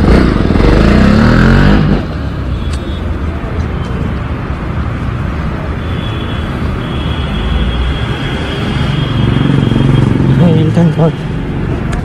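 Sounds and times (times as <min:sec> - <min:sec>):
motorcycle engine revving high: 0:00.0 - 0:02.2
street traffic rumble: 0:00.0 - 0:12.0.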